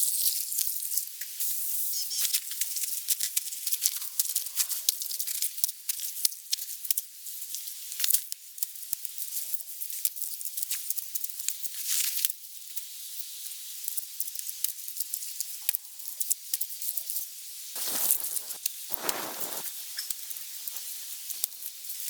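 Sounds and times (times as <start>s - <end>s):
rushing burst: 17.8s - 19.7s
sharp pops: 17.8s - 19.7s
wood fire crackling and hissing: 17.8s - 21.7s.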